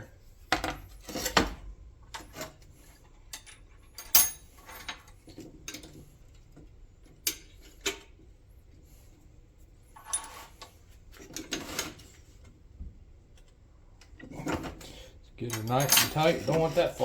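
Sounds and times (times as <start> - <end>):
small metal parts clinking: 3.3 - 5.1, 15.4 - 17.0.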